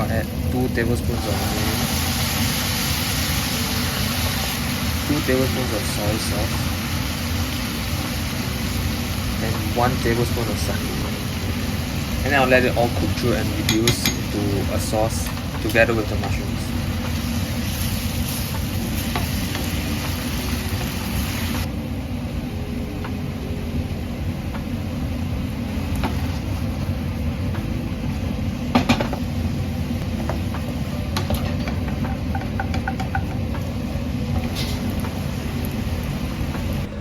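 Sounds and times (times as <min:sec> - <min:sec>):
food sizzling in a pan: 0:00.0 - 0:21.7, 0:24.6 - 0:36.9
steady low rumble: 0:00.0 - 0:37.0
utensil knocking against pan: 0:13.6 - 0:14.3, 0:30.2 - 0:33.7.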